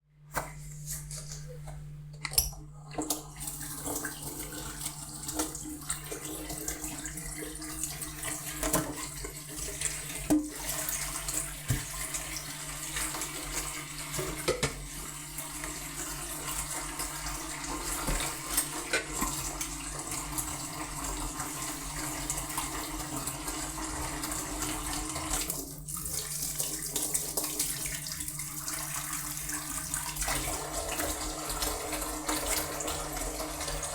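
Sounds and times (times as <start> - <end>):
tap water running into sink: 1.1 - 33.9
dishes knocking and clinking: 14.4 - 14.8.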